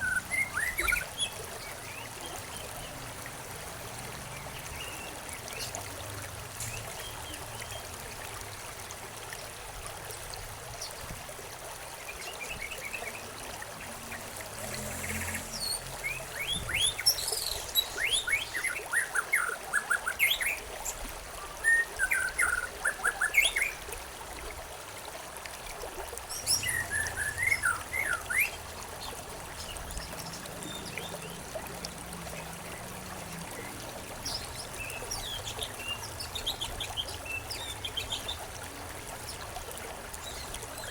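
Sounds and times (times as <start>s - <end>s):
stream trickling: 0.0s - 40.9s
songbirds chirping: 26.3s - 40.9s.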